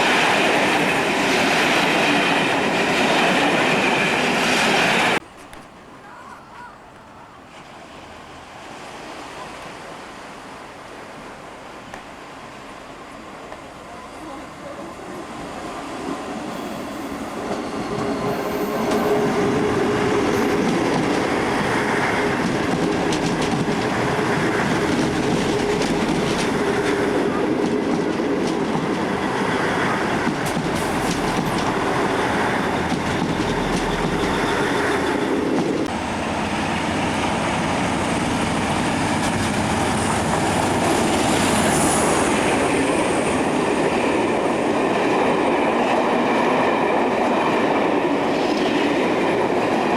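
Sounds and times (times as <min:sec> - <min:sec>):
train passing: 0:00.0 - 0:05.2, 0:07.5 - 0:49.9
wheels clicking over rail joints: 0:17.6 - 0:34.9.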